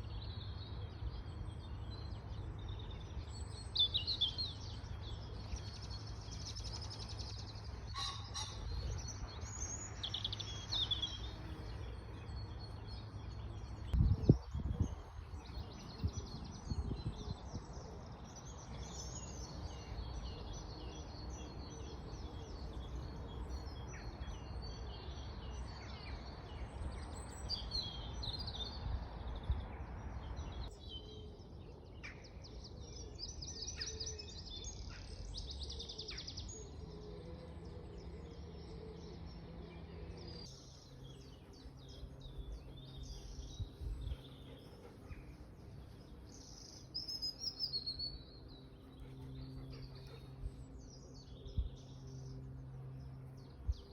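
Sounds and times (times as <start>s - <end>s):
birds singing and chirping: 0.0s - 53.9s.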